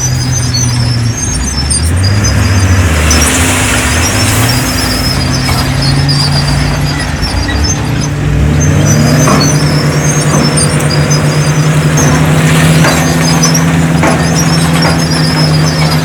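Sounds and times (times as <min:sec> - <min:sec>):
heavy diesel engine running: 0:00.0 - 0:16.0
metallic knocks and clanks: 0:05.4 - 0:16.0.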